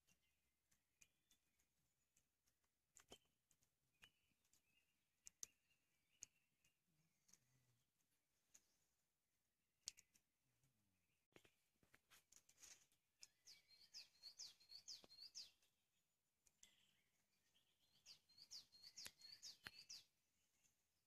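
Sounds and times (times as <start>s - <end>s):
faint clicks: 0.0s - 7.5s, 9.8s - 10.3s
songbird singing: 3.0s - 7.4s, 13.2s - 20.7s.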